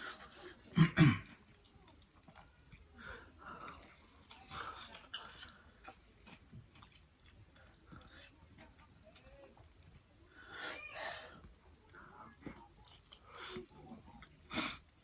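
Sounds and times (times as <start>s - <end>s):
person chewing food: 0.0s - 10.5s, 11.3s - 15.0s.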